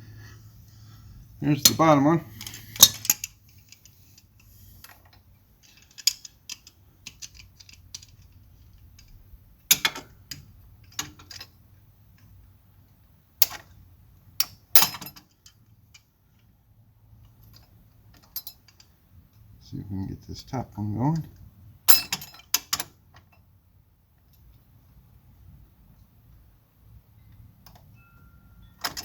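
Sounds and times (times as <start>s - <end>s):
metal tools clicking and clanking: 1.6s - 11.5s, 14.4s - 16.1s, 17.4s - 18.9s, 21.1s - 23.4s, 27.7s - 29.0s.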